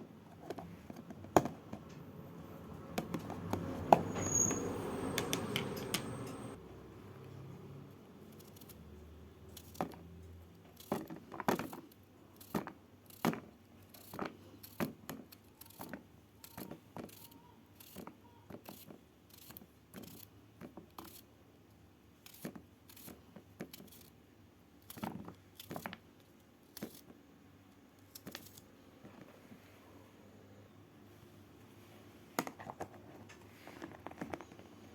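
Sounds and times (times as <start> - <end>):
small hard objects clicking and tapping: 5.1 - 6.5, 9.5 - 21.2, 24.8 - 27.1.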